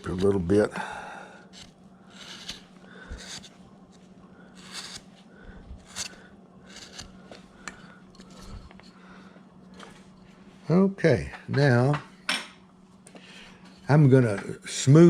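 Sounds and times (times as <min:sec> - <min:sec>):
carving tool scraping wood: 0:00.0 - 0:00.7, 0:01.4 - 0:05.1, 0:05.7 - 0:08.9
faint steady hum: 0:00.0 - 0:15.0.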